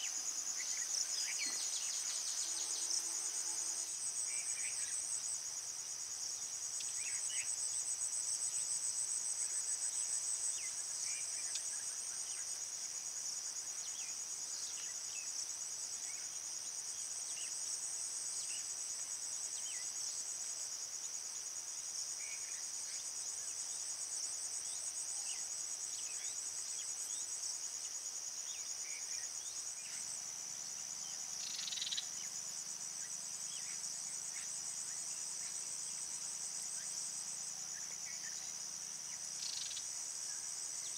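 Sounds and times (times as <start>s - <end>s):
crickets trilling: 20.9s - 40.9s.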